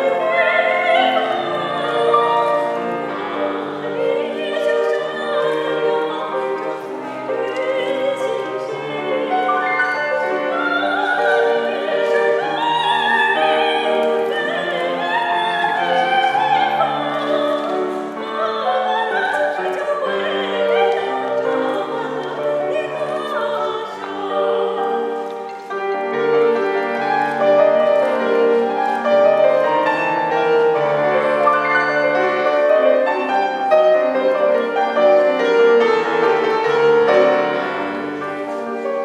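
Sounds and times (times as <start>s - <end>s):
operatic singing: 0.0s - 39.0s
piano accompaniment: 0.0s - 39.0s.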